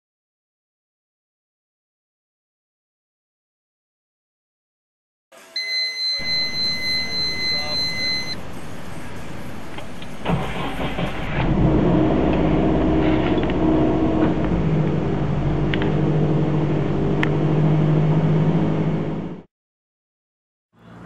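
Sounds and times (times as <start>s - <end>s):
car engine starting and running: 9.7s - 19.5s.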